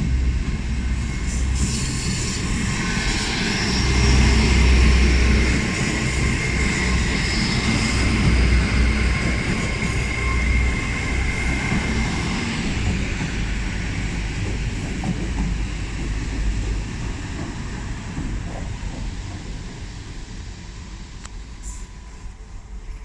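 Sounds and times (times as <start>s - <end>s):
train rumbling: 0.0s - 23.0s
thin high whine: 1.0s - 13.6s.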